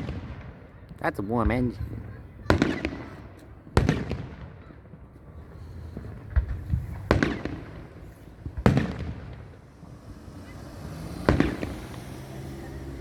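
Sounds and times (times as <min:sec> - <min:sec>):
fireworks sharp bangs: 0:00.0 - 0:13.0
fireworks dull thumps: 0:05.3 - 0:10.2, 0:11.2 - 0:12.4.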